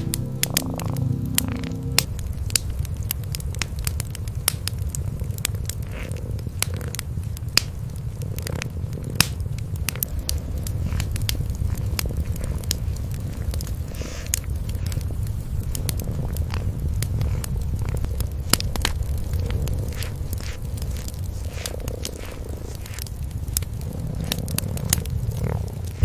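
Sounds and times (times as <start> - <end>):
cat purring: 0.0 - 26.0
wood fire crackling: 0.0 - 26.0.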